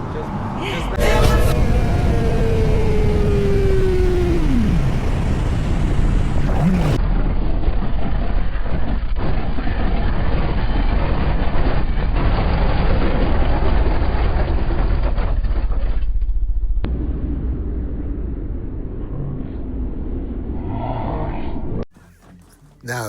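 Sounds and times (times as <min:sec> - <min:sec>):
vehicle noise in motion: 0:00.0 - 0:09.2.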